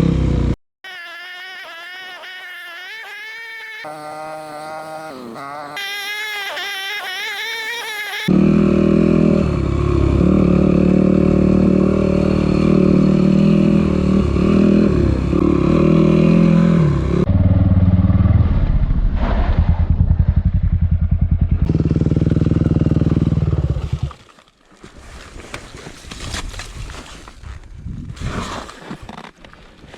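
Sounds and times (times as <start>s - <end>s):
motorcycle engine revving: 0.0s - 0.6s, 1.6s - 24.1s.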